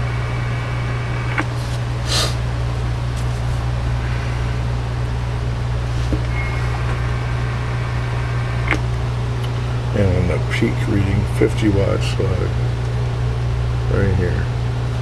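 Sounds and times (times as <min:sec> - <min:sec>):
electrical mains hum: 0:00.0 - 0:15.0
hiss: 0:02.0 - 0:02.4
small clicks: 0:08.6 - 0:08.8.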